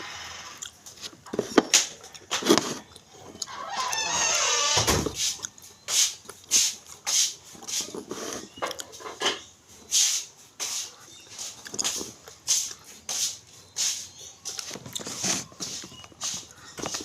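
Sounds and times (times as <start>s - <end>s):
person chewing and lip-smacking: 11.6s - 12.9s.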